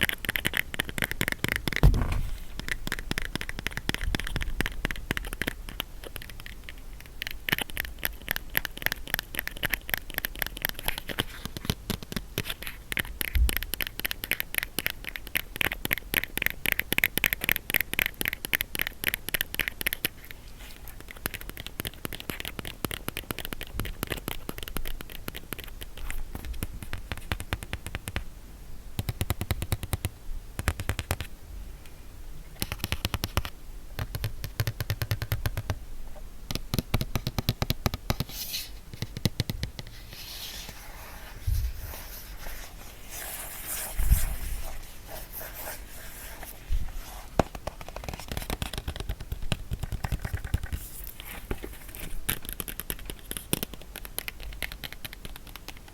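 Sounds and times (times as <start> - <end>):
fingers tapping on box: 0.0 - 20.2, 21.0 - 28.2, 29.0 - 31.3, 32.6 - 35.8, 36.5 - 38.3, 38.9 - 39.9, 47.4 - 51.0
heavier knocks: 1.8 - 2.5
scratching and rubbing on box: 39.8 - 49.2.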